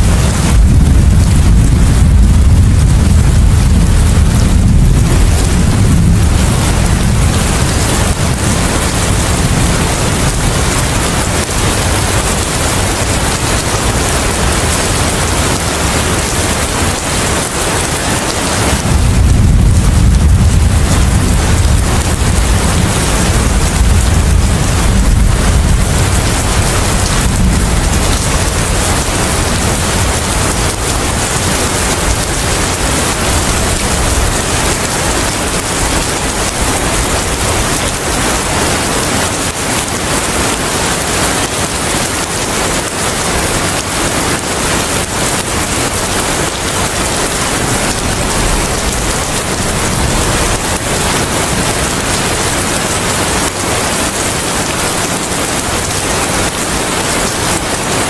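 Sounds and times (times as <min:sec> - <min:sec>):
low rumble: 0:00.0 - 0:16.6, 0:18.5 - 0:37.3
heavy rain: 0:00.0 - 0:58.0.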